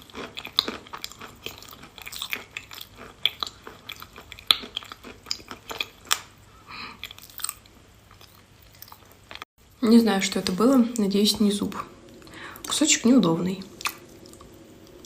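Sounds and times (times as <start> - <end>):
person chewing chalk: 0.0 - 6.3.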